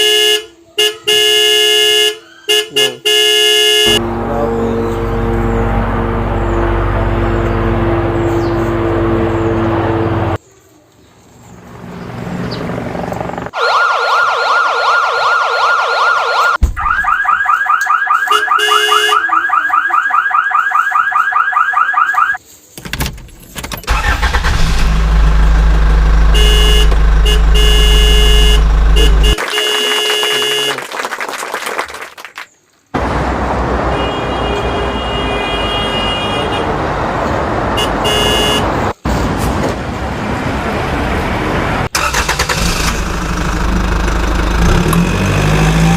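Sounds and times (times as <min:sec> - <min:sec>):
horn-like tones: 0:00.0 - 0:10.4, 0:25.5 - 0:30.8
low engine rumble: 0:04.0 - 0:10.4, 0:23.9 - 0:29.4
electronic siren sweeping: 0:13.2 - 0:22.4, 0:24.0 - 0:29.4
fast warbling siren: 0:13.5 - 0:22.4
electronic engine hum with tones: 0:24.5 - 0:29.4.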